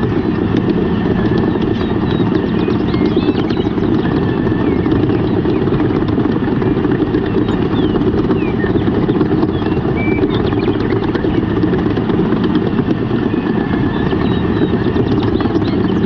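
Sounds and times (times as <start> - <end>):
bird chirps: 1.4 - 5.7, 7.3 - 11.5, 13.8 - 16.0.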